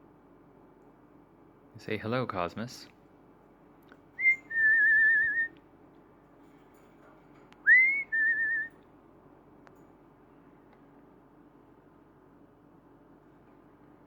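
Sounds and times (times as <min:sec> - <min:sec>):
person whistling: 0:04.2 - 0:05.5, 0:07.7 - 0:08.7.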